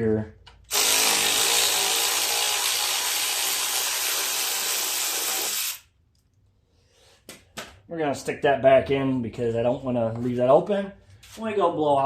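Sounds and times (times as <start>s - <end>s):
power tool whirring: 0.7s - 5.8s.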